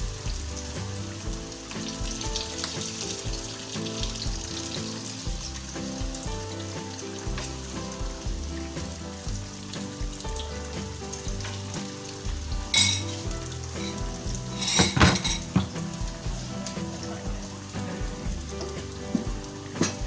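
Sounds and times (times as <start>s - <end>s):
paste sizzling in oil: 0.0s - 20.0s
utensils clattering: 12.7s - 13.2s, 13.8s - 15.8s.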